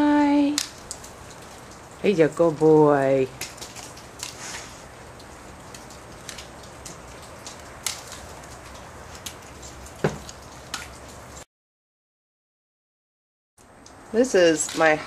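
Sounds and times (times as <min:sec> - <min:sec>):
dripping ticks and taps: 0:00.2 - 0:11.4, 0:13.6 - 0:14.0
wet snow hissing: 0:04.4 - 0:04.9.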